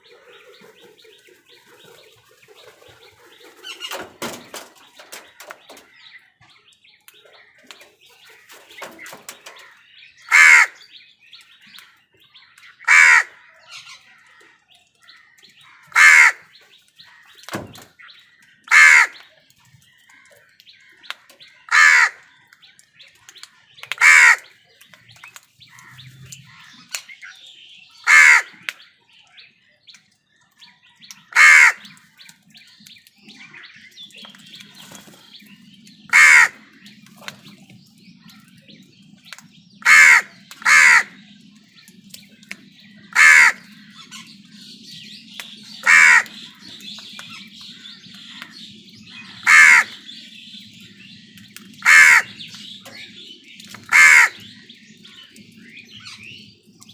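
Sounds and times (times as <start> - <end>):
small birds chirping: 0.0 - 56.9
crows cawing: 8.5 - 10.8, 12.8 - 17.4, 18.6 - 19.2, 21.7 - 22.4, 24.0 - 24.6, 28.0 - 28.7, 31.3 - 32.0, 36.1 - 36.8, 39.8 - 41.3, 43.0 - 44.0, 45.8 - 46.8, 49.1 - 50.1, 51.7 - 52.7, 53.8 - 55.1.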